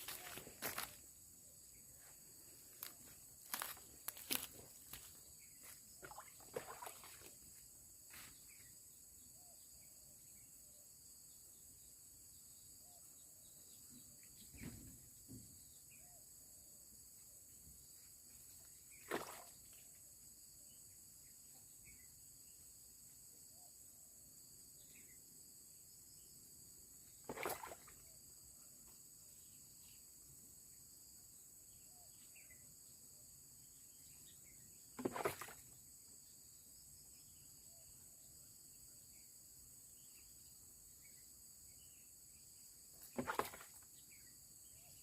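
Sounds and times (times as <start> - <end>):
high-pitched insect chorus: 0.0 - 14.1.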